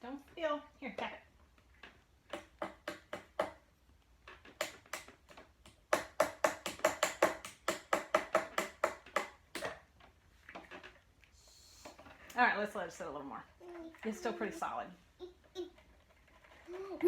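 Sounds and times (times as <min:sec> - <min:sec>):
toy hammer tapping on sand block: 0:02.3 - 0:03.6, 0:04.6 - 0:09.7.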